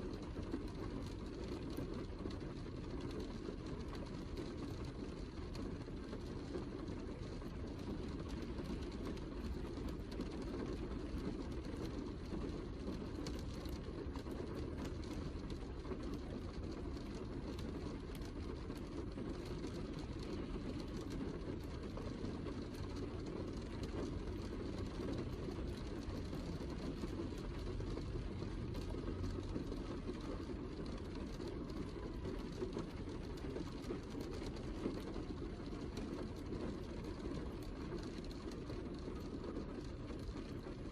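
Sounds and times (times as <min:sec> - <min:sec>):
heavy rain falling: 0:00.0 - 0:40.9
raindrop ticks: 0:00.0 - 0:40.9.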